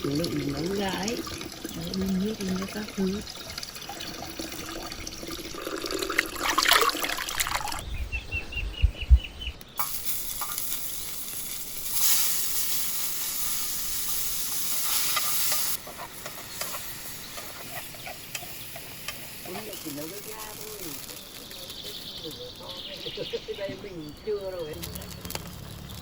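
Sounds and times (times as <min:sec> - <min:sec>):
utensils stirring and clattering: 0:00.0 - 0:07.8, 0:09.8 - 0:23.2
food sizzling in a pan: 0:09.8 - 0:22.3.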